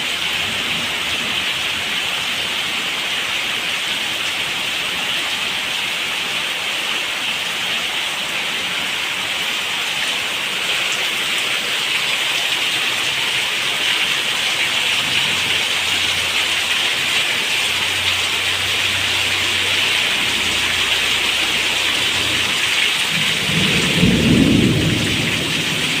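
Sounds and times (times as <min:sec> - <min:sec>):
heavy rain falling: 0:00.0 - 0:26.0
thunder rumbling: 0:22.1 - 0:26.0.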